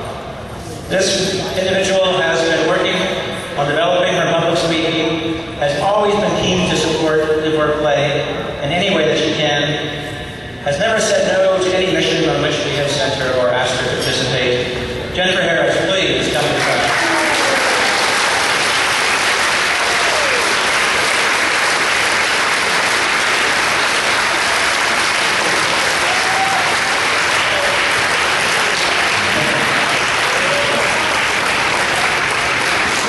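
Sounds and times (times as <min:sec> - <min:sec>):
audience clapping: 0:16.3 - 0:33.0.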